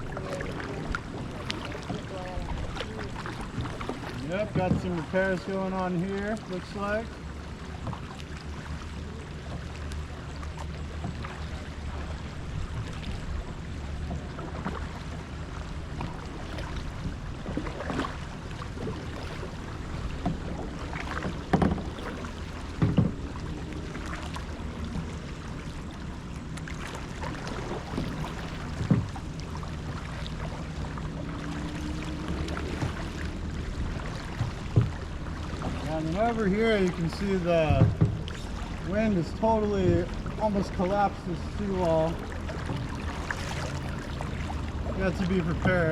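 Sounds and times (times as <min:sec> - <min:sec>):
light knocks on hull: 0:00.0 - 0:05.2, 0:07.8 - 0:08.3, 0:15.9 - 0:45.9
wind rumble on microphone: 0:00.0 - 0:05.4, 0:07.7 - 0:45.9
paddle splashes: 0:00.0 - 0:45.9.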